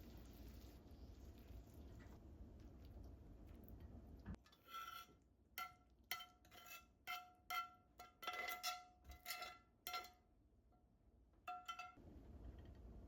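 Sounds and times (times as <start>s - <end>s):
utensil clinking against a bowl: 11.5s - 12.0s.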